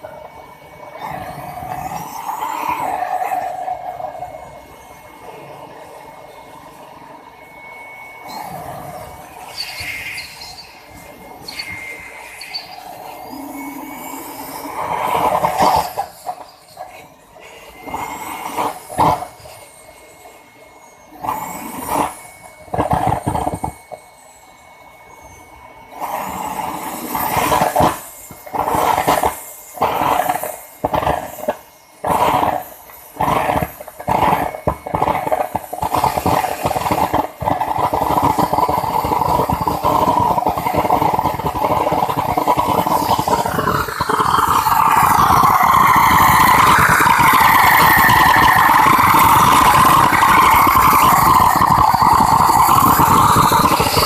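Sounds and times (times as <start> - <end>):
turbojet engine starting: 0.0 - 4.4, 7.6 - 19.8, 21.1 - 24.0, 25.9 - 54.0
loud bursts: 26.0 - 54.0.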